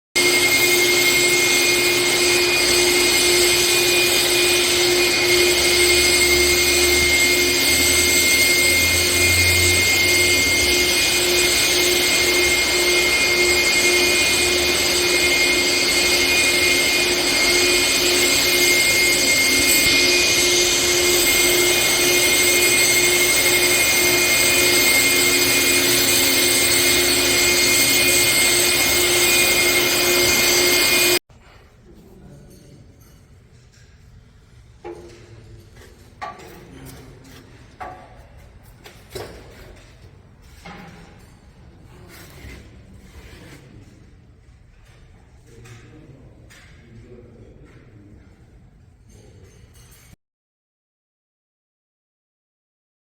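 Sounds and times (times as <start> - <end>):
machine motor humming: 0.2 - 31.2.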